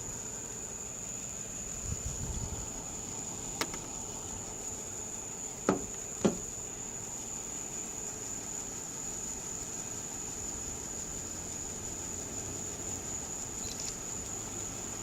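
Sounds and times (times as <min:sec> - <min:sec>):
high-pitched whine with hiss: 0:00.0 - 0:15.0
short sharp knocks: 0:05.7 - 0:06.5.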